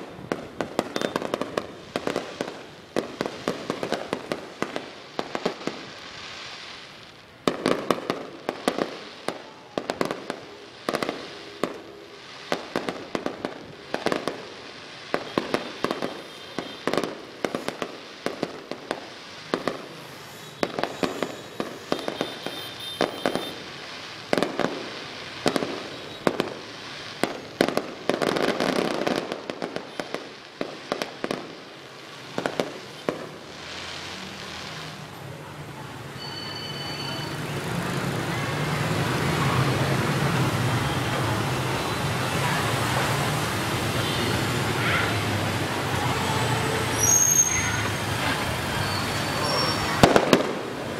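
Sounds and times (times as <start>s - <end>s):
fireworks crackling: 0.0s - 50.9s
firework shell bursts: 47.0s - 50.7s.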